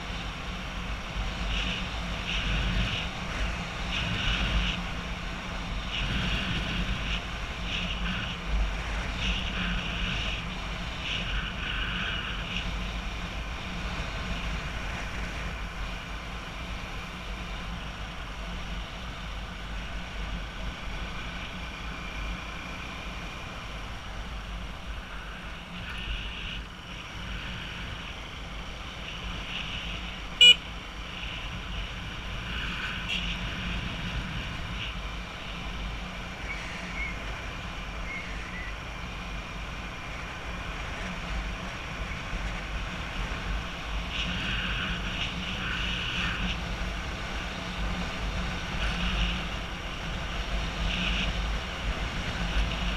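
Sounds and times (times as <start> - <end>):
road traffic: 0.0 - 52.9
horn toots: 30.4 - 30.7.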